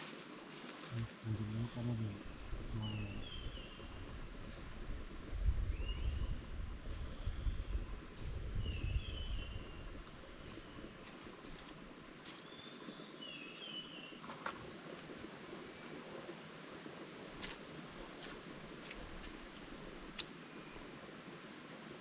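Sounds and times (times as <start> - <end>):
birds warbling and chirping: 1.2 - 7.5.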